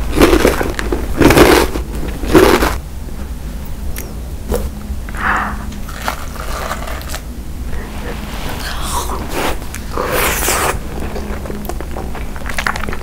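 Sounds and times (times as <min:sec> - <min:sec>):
crunching fried snack: 0:00.0 - 0:02.8.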